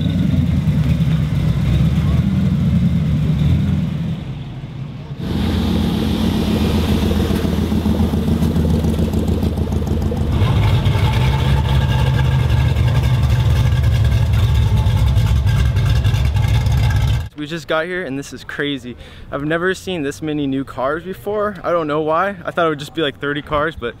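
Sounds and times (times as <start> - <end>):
car engine rumbling: 0.0 - 17.4.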